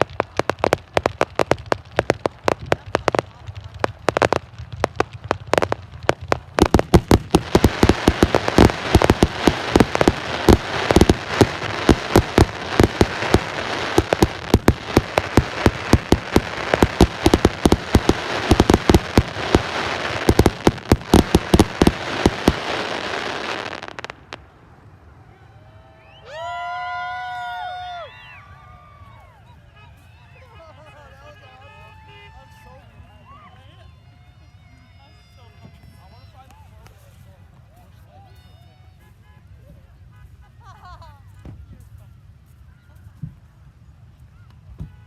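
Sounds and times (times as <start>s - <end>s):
fireworks bangs: 0.0s - 24.6s
fireworks crackling: 0.0s - 24.8s.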